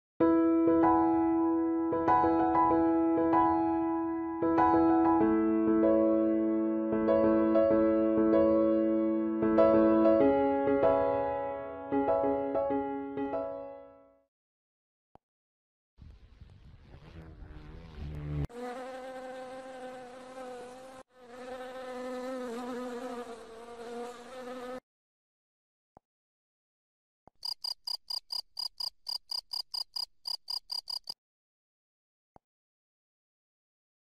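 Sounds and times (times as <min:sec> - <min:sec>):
flying insect buzzing: 0:16.9 - 0:24.8
cricket pulsing chirp: 0:27.4 - 0:31.2.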